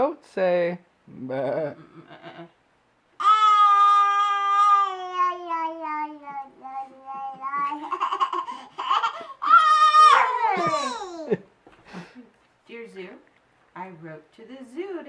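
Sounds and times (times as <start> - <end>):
toddler imitating goat bleat: 3.2 - 7.8.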